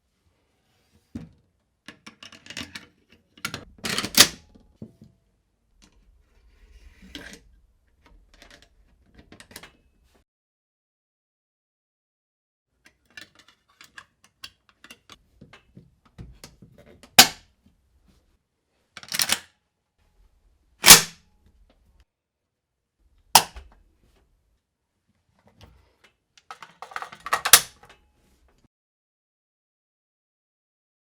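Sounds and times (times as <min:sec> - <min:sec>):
loud sharp rifle clacks: 0:20.8 - 0:21.2.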